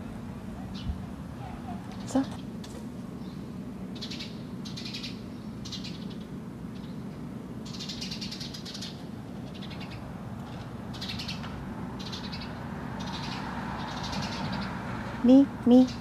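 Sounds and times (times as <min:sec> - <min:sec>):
birds giving rasping alarm calls: 0:03.2 - 0:16.0.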